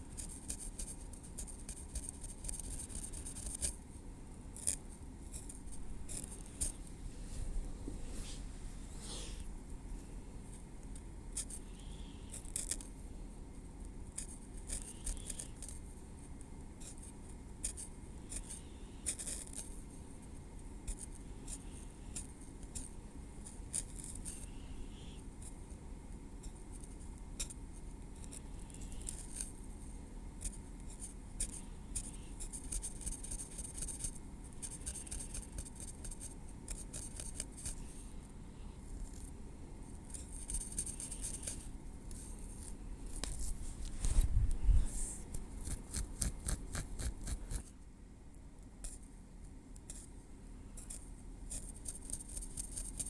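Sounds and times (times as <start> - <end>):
small scrapes: 4.6 - 9.5, 14.2 - 15.8, 40.1 - 47.7.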